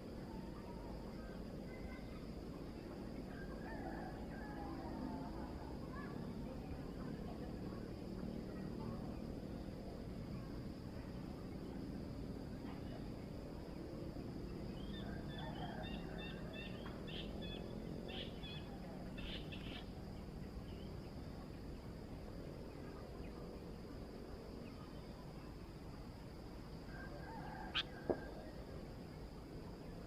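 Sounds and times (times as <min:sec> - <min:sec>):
constant high hiss: 0:00.0 - 0:30.0.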